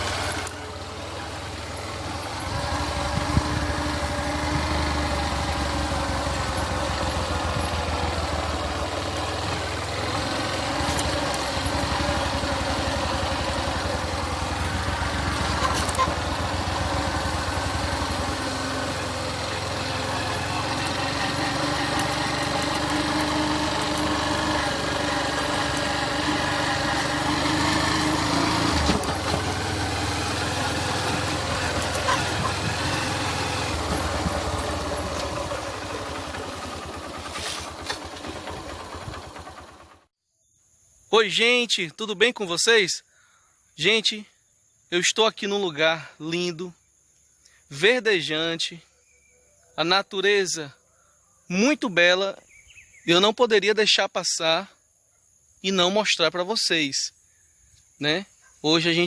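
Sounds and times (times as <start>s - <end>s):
small engine running: 0.0s - 40.1s.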